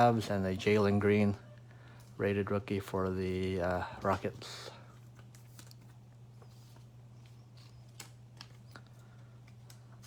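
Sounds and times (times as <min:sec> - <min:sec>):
low electrical hum: 0:00.0 - 0:10.0
trading cards clicking: 0:07.2 - 0:10.0.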